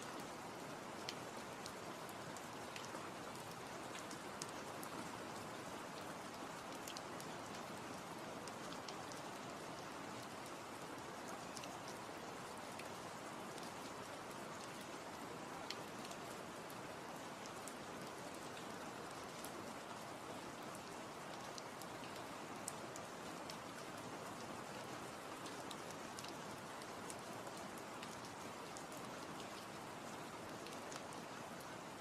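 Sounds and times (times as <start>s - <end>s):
steady rain hiss: 0.0s - 32.0s
raindrop ticks: 6.7s - 7.7s, 25.7s - 29.6s.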